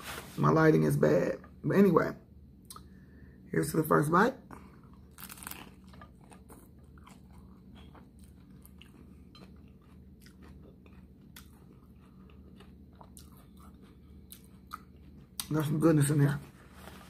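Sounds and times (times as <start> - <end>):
low steady hum: 0.0 - 17.0
person chewing crunchy food: 4.5 - 15.7.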